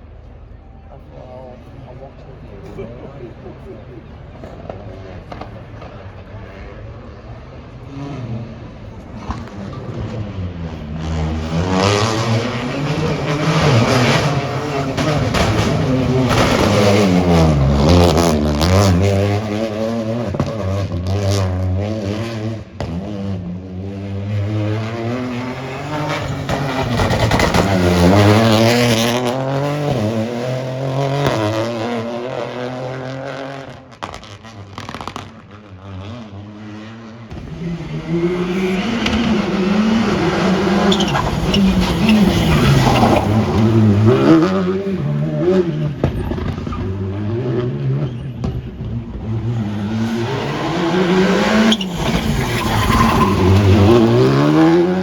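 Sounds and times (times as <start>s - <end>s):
rally car engines revving: 0.1s - 55.0s.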